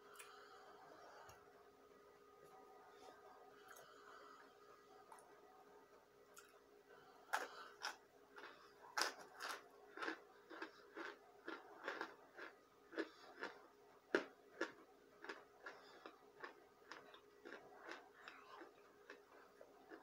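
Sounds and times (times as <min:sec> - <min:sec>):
crisp chewing crunches: 0:07.3 - 0:20.0.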